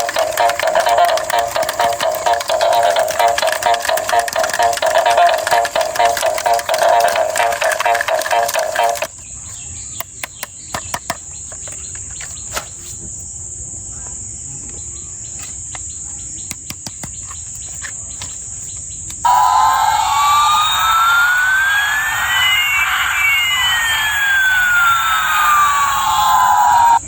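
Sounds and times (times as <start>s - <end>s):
electronic toy siren: 0.0s - 9.1s, 19.2s - 27.0s
steady high-pitched whine: 19.2s - 27.0s.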